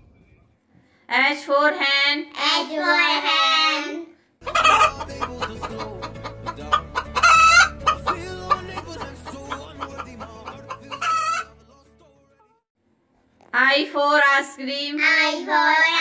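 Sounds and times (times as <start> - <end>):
chickens clucking: 4.4 - 11.6.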